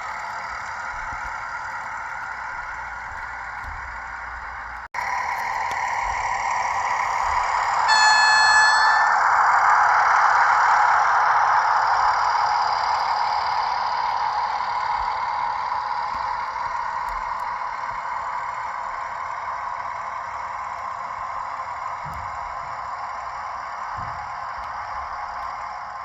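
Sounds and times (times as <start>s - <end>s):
model train whirring on track: 0.0s - 26.0s.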